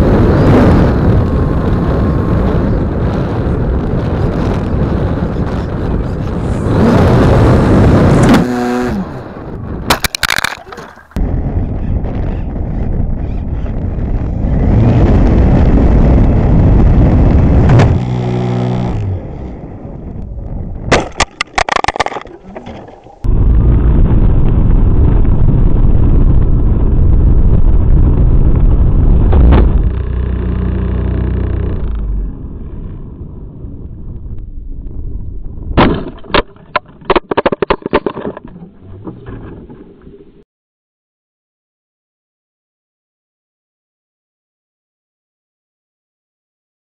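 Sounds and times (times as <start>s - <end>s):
loud rushing wind: 0.0s - 9.9s, 11.2s - 21.2s
sharp cracks and knocks: 9.9s - 11.2s, 20.9s - 23.3s, 35.8s - 39.8s.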